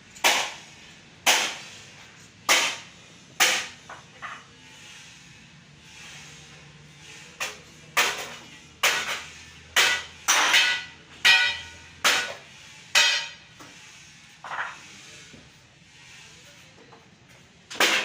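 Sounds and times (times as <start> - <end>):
hand tool striking metal: 0.2 - 0.6, 1.2 - 1.6, 2.5 - 3.8, 7.4 - 13.5.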